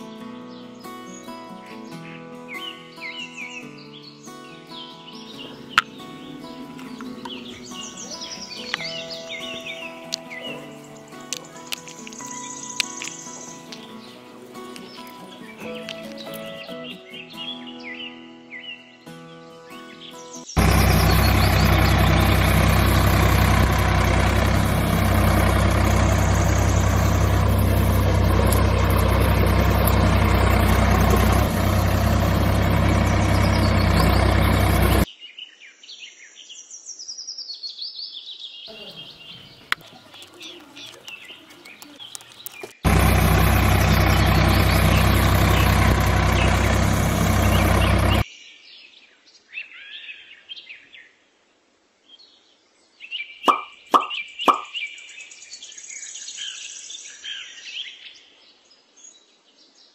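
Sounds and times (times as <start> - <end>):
birds chirping: 0.0 - 35.1, 38.7 - 48.2, 53.4 - 55.3
tractor engine running: 5.4 - 10.2, 20.6 - 35.1, 39.2 - 48.2.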